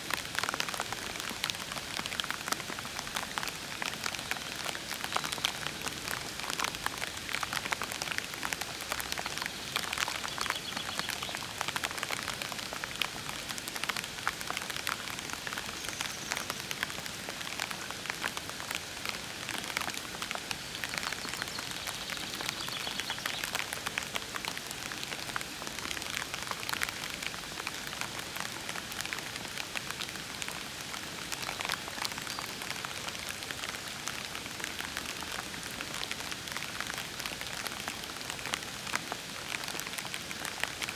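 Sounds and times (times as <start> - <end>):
gentle rain: 0.0 - 40.9
raindrops ticking close by: 0.0 - 40.9.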